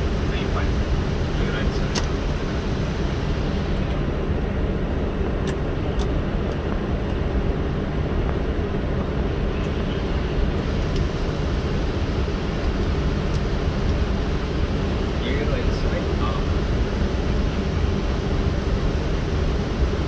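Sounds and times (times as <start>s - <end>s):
aircraft engines rumbling: 0.0s - 20.0s.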